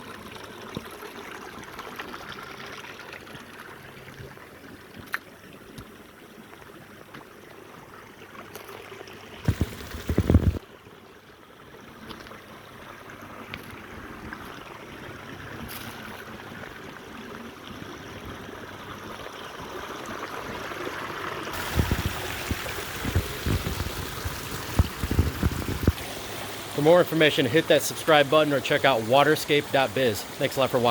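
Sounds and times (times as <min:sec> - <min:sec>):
water splashing over rocks: 0:08.4 - 0:10.7, 0:19.6 - 0:30.9.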